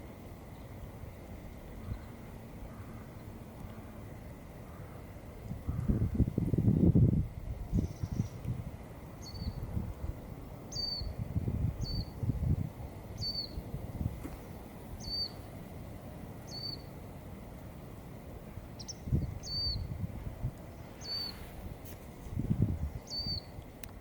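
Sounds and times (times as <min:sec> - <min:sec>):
small bird chirping: 0:07.7 - 0:08.4, 0:09.2 - 0:09.6, 0:10.7 - 0:11.2, 0:11.8 - 0:12.2, 0:13.2 - 0:13.6, 0:15.0 - 0:15.5, 0:16.5 - 0:16.9, 0:18.8 - 0:19.9, 0:20.7 - 0:21.4, 0:23.0 - 0:23.6.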